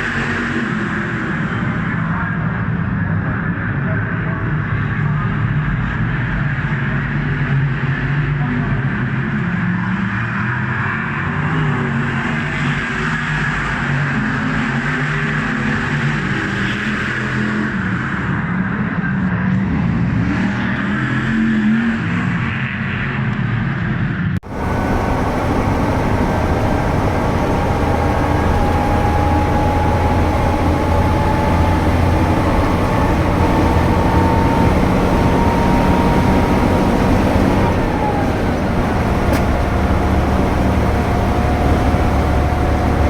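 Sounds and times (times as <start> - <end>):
car engines running: 24.4 - 43.0.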